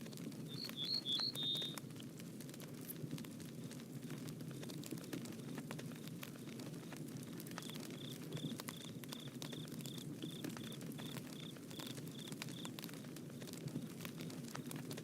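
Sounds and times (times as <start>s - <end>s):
bonfire crackling and popping: 0.0s - 15.0s.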